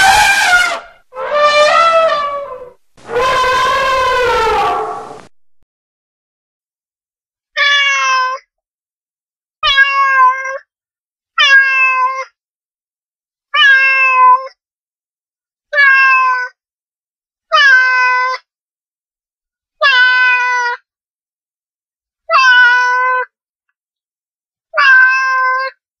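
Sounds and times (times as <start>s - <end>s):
cat meowing: 0.0s - 5.3s, 9.6s - 10.6s, 11.4s - 12.2s, 13.6s - 14.5s, 15.8s - 16.5s, 24.8s - 25.8s.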